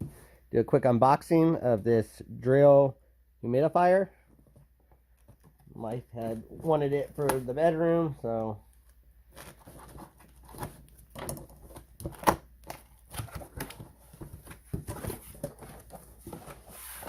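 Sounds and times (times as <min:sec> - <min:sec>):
cardboard box rustling: 0:09.3 - 0:17.0.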